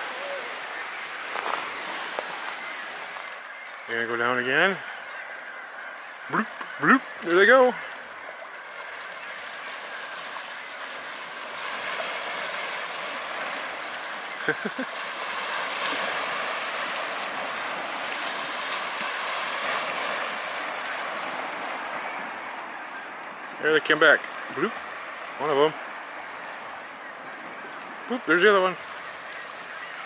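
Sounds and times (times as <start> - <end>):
small waves washing on shore: 0.0 - 30.0
short call or voice: 6.3 - 7.1.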